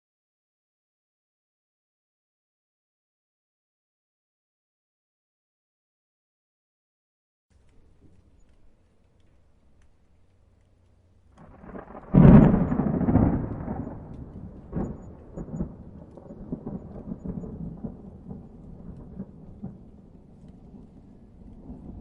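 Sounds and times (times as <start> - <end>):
rolling thunder rumble: 11.4 - 22.0
thunderclap: 11.4 - 22.0.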